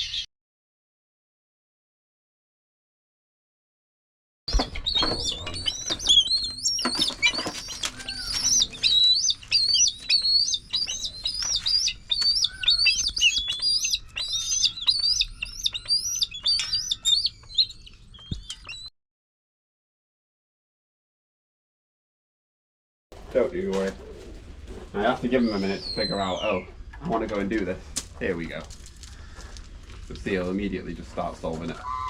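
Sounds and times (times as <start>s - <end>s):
bird of prey calling: 4.5s - 18.9s, 25.2s - 26.9s, 31.7s - 32.0s.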